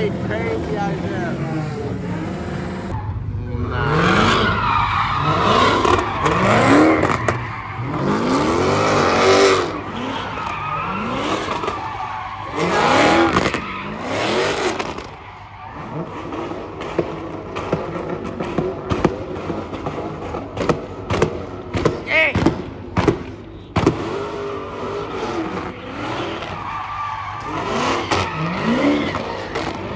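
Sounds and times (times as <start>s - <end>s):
tyres squealing: 0.0s - 3.0s, 3.6s - 17.2s, 23.4s - 29.9s
car engine revving hard: 0.0s - 15.2s, 15.8s - 26.7s, 27.4s - 29.9s.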